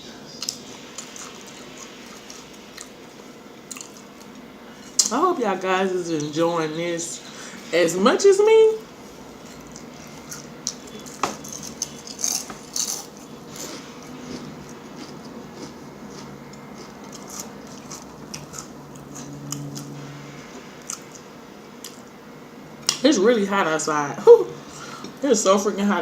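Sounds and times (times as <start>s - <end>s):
chewing with crackles: 0.3s - 5.1s, 9.3s - 19.9s, 20.6s - 22.1s.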